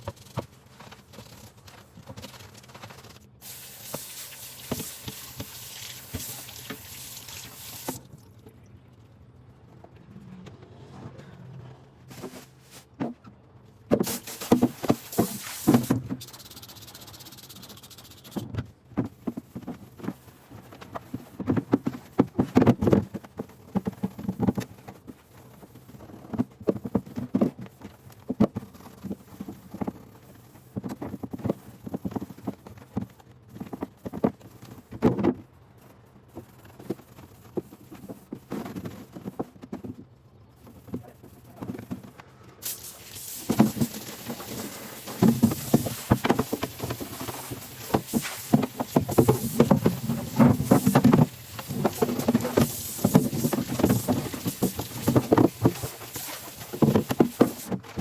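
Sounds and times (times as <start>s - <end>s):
short hiss: 14.0s - 18.4s, 42.6s - 46.6s.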